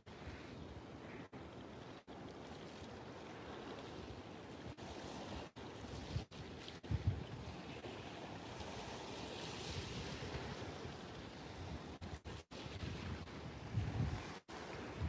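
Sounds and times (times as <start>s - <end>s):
waves rushing: 0.0s - 15.0s
wind: 0.0s - 15.0s
wind bumps on microphone: 5.9s - 7.6s, 11.6s - 15.0s.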